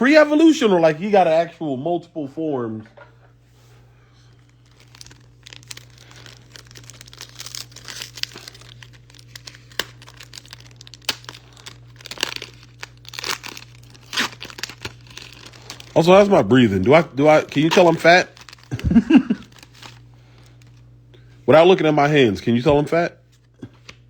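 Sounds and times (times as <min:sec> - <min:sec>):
low electrical hum: 0:00.0 - 0:24.0
foil wrapper crinkling and tearing: 0:04.3 - 0:20.8.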